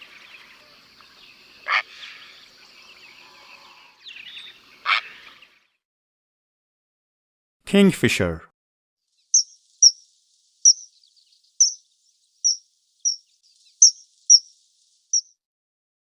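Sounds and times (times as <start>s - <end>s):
kingfisher calling: 9.4s - 10.0s, 10.7s - 10.9s, 11.6s - 11.8s, 12.5s - 13.2s, 13.8s - 14.5s.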